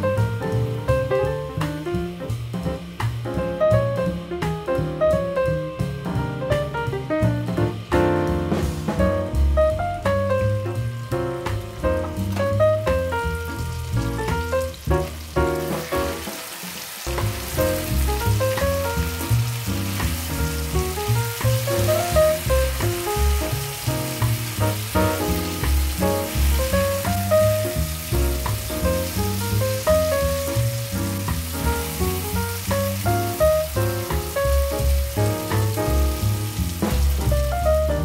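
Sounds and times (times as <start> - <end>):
background music with bass line: 0.0 - 16.3, 17.1 - 38.0
paste sizzling in a frying pan: 9.9 - 37.9.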